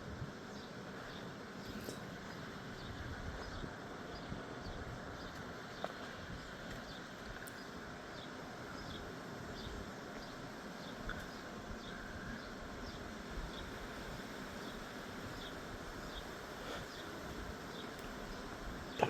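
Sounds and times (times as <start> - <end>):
wind rumble on microphone: 1.6 - 7.9.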